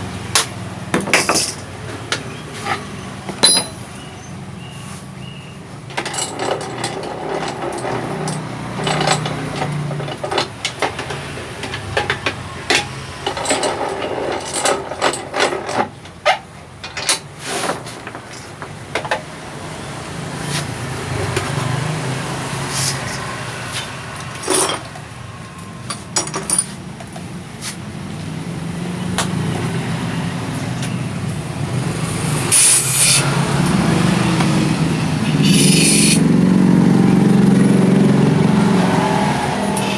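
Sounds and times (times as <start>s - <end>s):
metal tools clinking: 0.3s - 4.3s, 5.9s - 15.9s, 22.6s - 25.0s, 25.6s - 27.3s, 28.6s - 36.2s
low engine hum: 33.2s - 39.9s.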